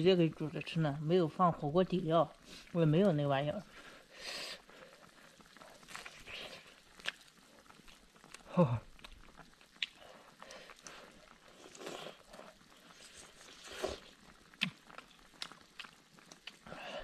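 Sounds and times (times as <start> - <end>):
person chewing food: 4.6 - 17.0.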